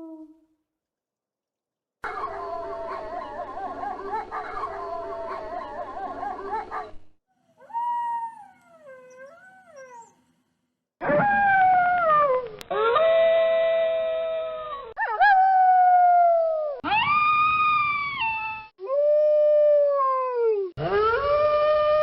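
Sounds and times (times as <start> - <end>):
wolves howling: 2.0 - 7.0.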